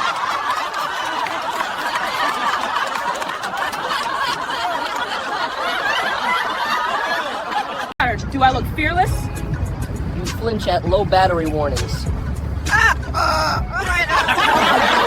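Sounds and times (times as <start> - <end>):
crowd laughing: 0.0 - 8.0, 12.6 - 15.0.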